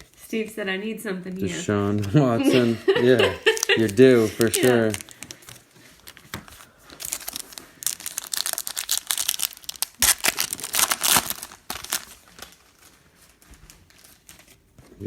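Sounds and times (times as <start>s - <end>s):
plastic wrapper crinkling and tearing: 1.7s - 2.4s, 3.4s - 14.8s.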